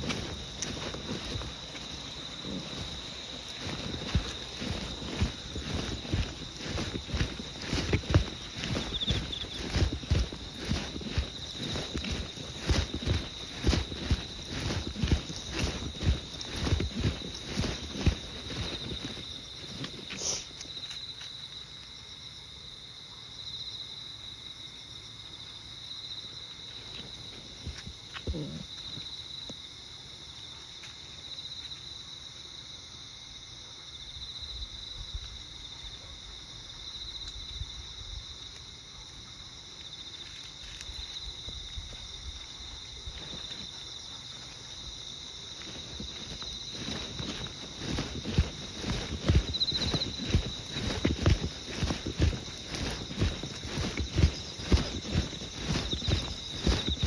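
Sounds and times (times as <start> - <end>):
insects trilling: 0.0 - 57.0
faint rustles and clicks: 45.6 - 57.0.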